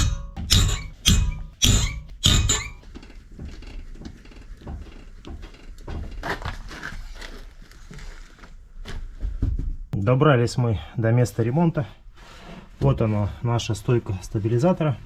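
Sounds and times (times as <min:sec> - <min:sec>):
sharp knocks: 0:00.0 - 0:03.5.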